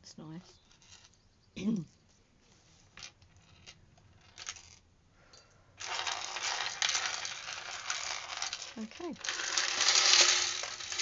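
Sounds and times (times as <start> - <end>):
beads clicking: 5.8 - 11.0
beads rattling together: 5.8 - 11.0.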